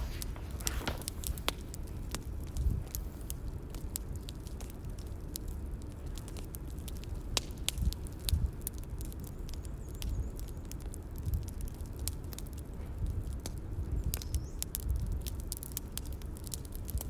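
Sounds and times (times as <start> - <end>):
low thuds: 0.0 - 1.7
bonfire crackling: 0.0 - 17.0
fire low rumble: 0.0 - 17.0.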